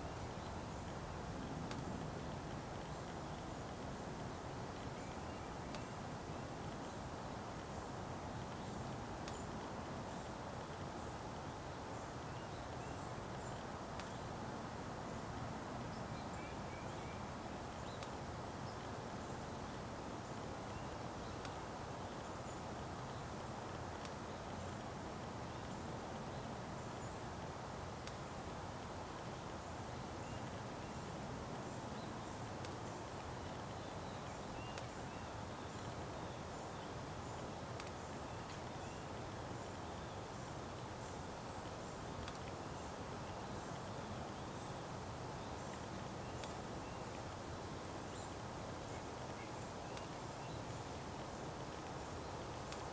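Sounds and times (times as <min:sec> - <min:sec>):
faint clicks: 0:08.4 - 0:10.3, 0:12.7 - 0:14.2, 0:17.9 - 0:18.2, 0:21.3 - 0:21.6, 0:23.0 - 0:24.9, 0:28.0 - 0:28.2, 0:32.4 - 0:35.0, 0:37.4 - 0:38.7, 0:41.6 - 0:42.7, 0:45.6 - 0:47.3, 0:48.9 - 0:52.9
small birds chirping: 0:29.1 - 0:52.9.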